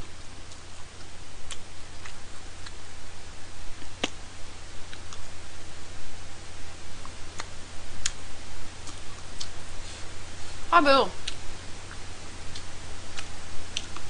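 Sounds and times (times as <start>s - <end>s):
steady hiss and low hum: 0.0s - 14.0s.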